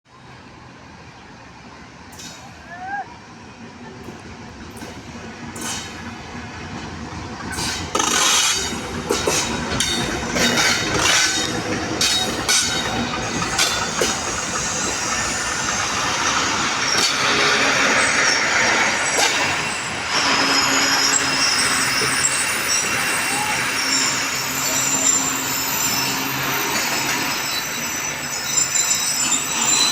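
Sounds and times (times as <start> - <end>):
train wheels clacking over rail joints: 4.0 - 23.4
high-pitched wheel and brake squeal: 7.6 - 29.9.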